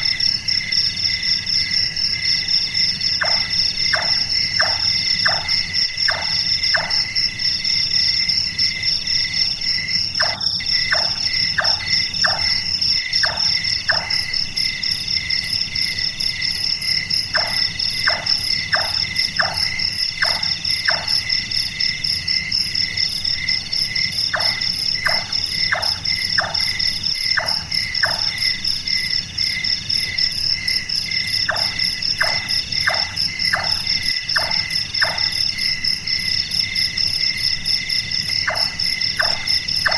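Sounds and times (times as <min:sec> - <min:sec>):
crickets and night insects chirping: 0:00.0 - 0:39.9
nightjar knocking calls: 0:03.2 - 0:07.1, 0:10.2 - 0:14.3, 0:17.4 - 0:21.2, 0:24.3 - 0:28.4, 0:31.4 - 0:35.4, 0:38.4 - 0:39.9.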